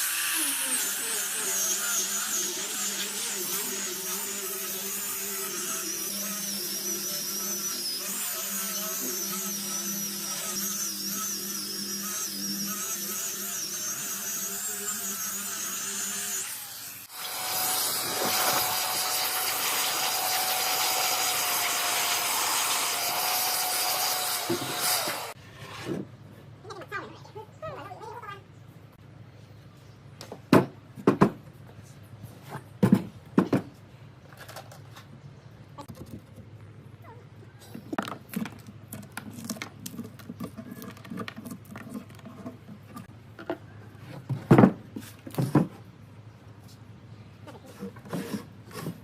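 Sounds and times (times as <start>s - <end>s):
electric power tool running: 0.0s - 25.4s
louder noisier tool: 0.0s - 25.9s.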